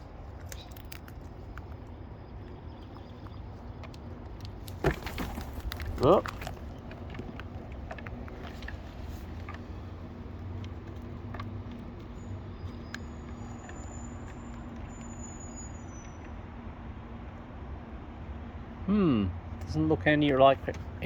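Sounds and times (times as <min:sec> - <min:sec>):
distant road traffic drone: 0:00.0 - 0:21.0
faint high whistles: 0:12.9 - 0:16.3.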